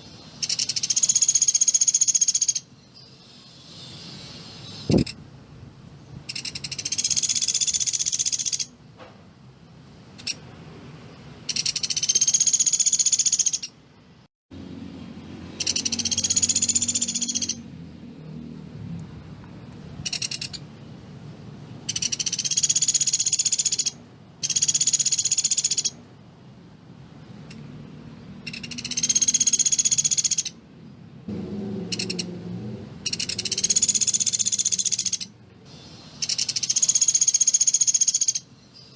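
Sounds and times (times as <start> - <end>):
bird rapid rattling trills: 0.0 - 5.2, 6.2 - 8.8, 10.2 - 10.4, 11.5 - 13.8, 15.5 - 17.6, 20.0 - 20.7, 21.8 - 26.0, 28.4 - 30.6, 31.9 - 32.3, 33.0 - 38.9.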